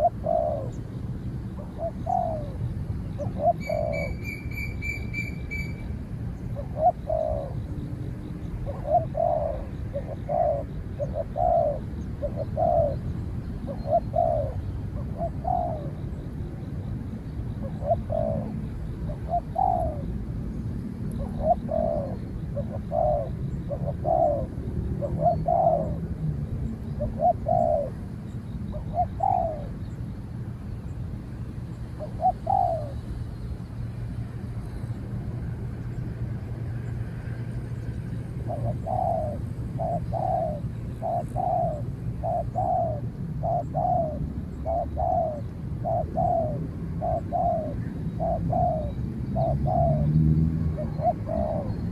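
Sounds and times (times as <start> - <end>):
doves cooing: 0.0 - 0.8, 1.6 - 2.6, 3.2 - 5.7, 6.5 - 7.7, 8.6 - 16.2, 17.6 - 20.2, 21.2 - 26.2, 27.0 - 28.1, 28.7 - 29.8, 32.0 - 33.0, 38.4 - 51.9
steady low hum: 0.0 - 51.9.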